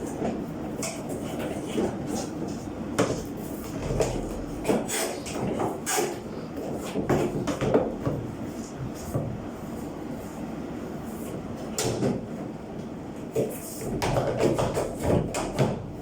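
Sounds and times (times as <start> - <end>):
knocks and clatter from dryer: 6.9 - 9.4, 11.7 - 12.3, 13.4 - 16.0.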